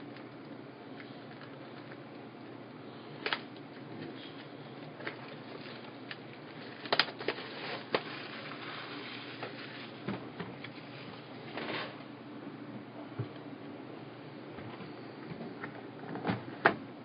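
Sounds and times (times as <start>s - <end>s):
rustling of card pack wrappers: 4.0s - 10.1s.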